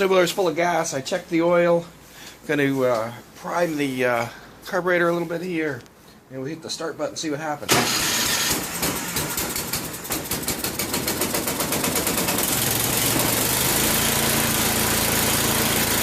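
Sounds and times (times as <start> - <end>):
electric starter cranking: 7.7 - 16.0
small engine starting and running: 7.7 - 16.0.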